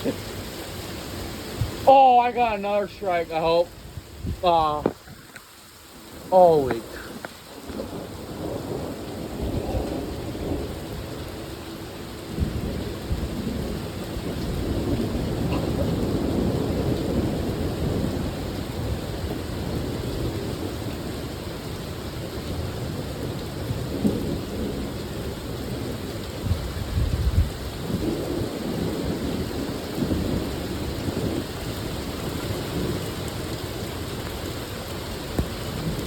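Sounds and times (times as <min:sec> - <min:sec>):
heavy rain hissing: 0:00.0 - 0:36.0
thunder rumbling: 0:06.2 - 0:21.8, 0:22.4 - 0:34.2.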